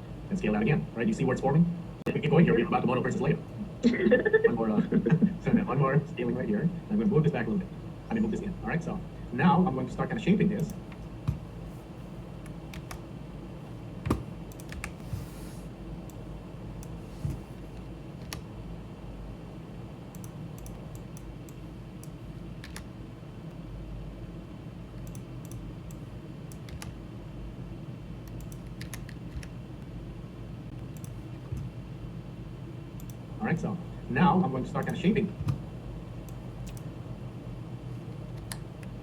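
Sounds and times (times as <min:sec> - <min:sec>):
computer hum: 0:00.0 - 0:39.0
keyboard and mouse clicks: 0:12.4 - 0:13.0, 0:14.0 - 0:15.0, 0:18.2 - 0:18.5, 0:20.1 - 0:22.9, 0:25.0 - 0:27.0, 0:28.2 - 0:29.5, 0:30.9 - 0:31.7, 0:34.8 - 0:35.6, 0:36.2 - 0:36.9, 0:38.3 - 0:39.0.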